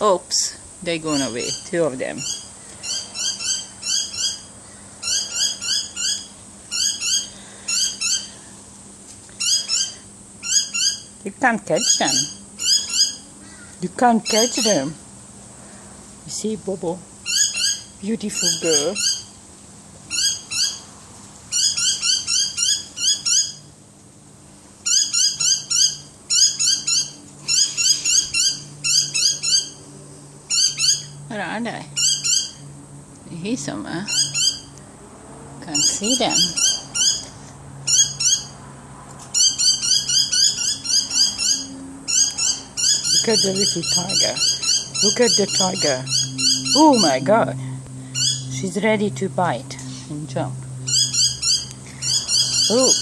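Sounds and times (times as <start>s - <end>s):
small birds chirping: 0.3s - 8.6s, 9.2s - 15.0s, 15.6s - 19.4s, 20.0s - 20.9s, 21.5s - 23.7s, 24.8s - 32.8s, 33.4s - 34.9s, 35.6s - 38.6s, 39.2s - 53.0s.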